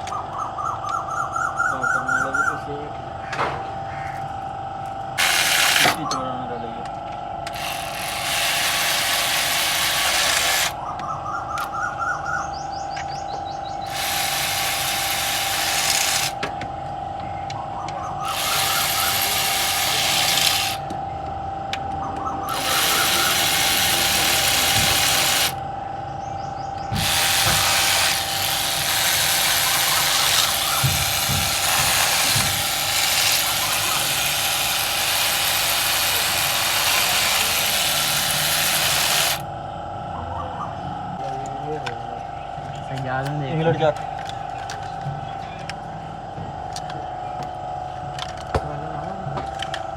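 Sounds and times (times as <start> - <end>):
steady high whine: 0.0 - 49.9
power tool running in bursts: 4.5 - 6.6, 7.3 - 10.8, 13.8 - 16.5, 18.2 - 20.9, 22.5 - 25.7, 26.9 - 39.5.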